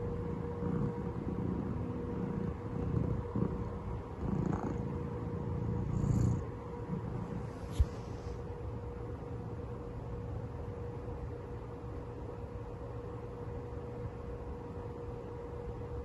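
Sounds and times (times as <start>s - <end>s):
cat purring: 0.0s - 8.3s.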